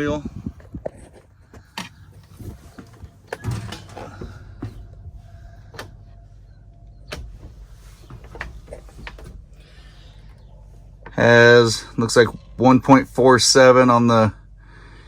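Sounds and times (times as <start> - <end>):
low steady hum in truck cab: 0.0 - 15.0
light clicks and knocks: 7.1 - 9.5.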